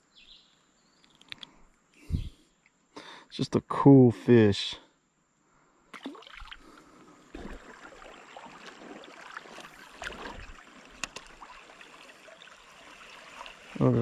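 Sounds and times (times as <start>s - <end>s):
creek water running: 5.9s - 14.0s.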